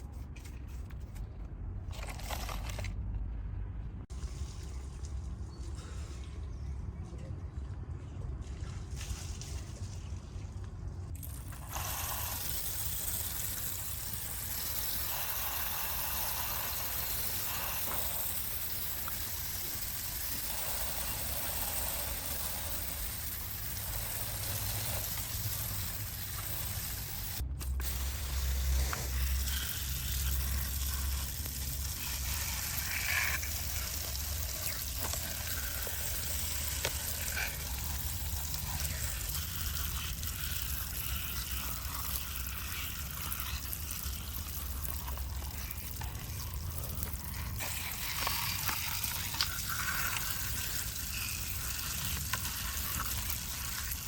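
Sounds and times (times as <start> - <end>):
water spraying and running: 11.1 - 54.0.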